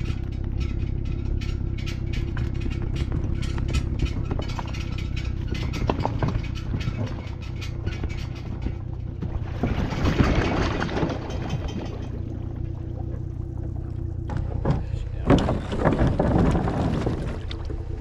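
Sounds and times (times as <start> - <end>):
steady low hum: 0.0 - 18.0
water splashing: 6.4 - 18.0.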